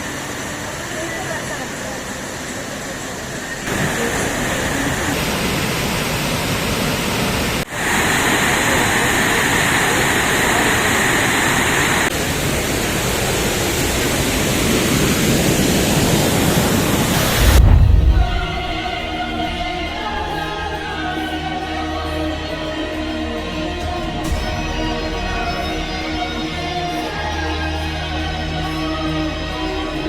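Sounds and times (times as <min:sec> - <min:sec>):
waterfall rushing: 0:03.2 - 0:21.1.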